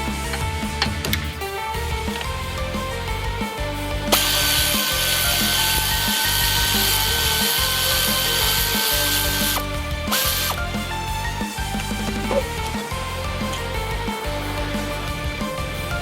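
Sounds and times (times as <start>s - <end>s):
background music with beat: 0.0s - 16.0s
power tool hissing and whining: 4.0s - 16.0s.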